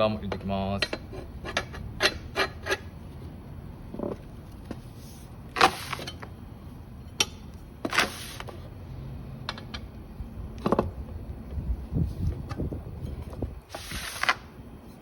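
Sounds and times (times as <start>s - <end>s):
tyre levers scraping wheel rim: 0.0s - 3.0s, 3.9s - 6.3s, 7.1s - 8.7s, 12.2s - 14.5s.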